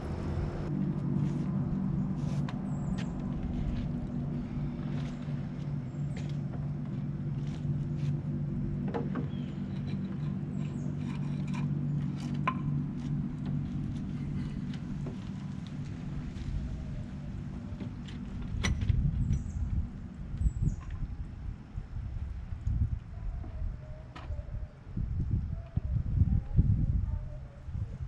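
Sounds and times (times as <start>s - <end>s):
small engine running: 0.0s - 0.8s.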